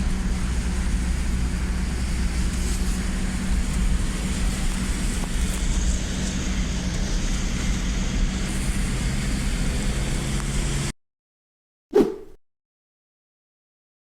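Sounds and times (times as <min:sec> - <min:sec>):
low engine-like hum: 0:00.0 - 0:10.9.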